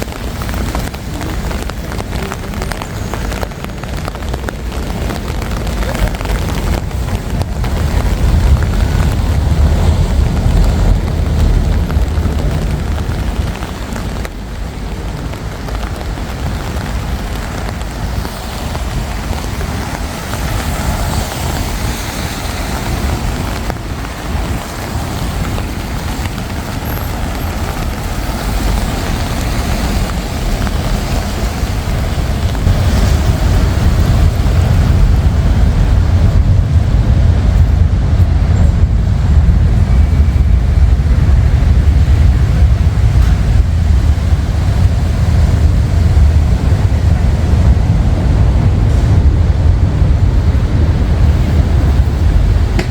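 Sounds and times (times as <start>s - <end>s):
road traffic rumble: 0.0s - 52.9s.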